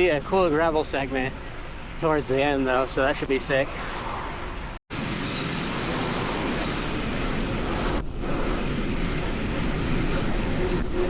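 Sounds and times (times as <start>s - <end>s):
bicycle road noise: 0.0s - 11.0s
wind on microphone: 5.3s - 11.0s.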